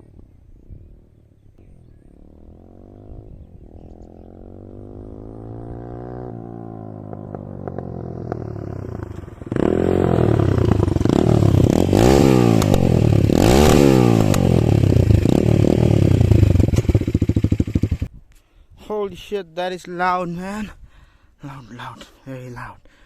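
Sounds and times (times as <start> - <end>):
motorcycle engine revving: 1.6 - 18.1.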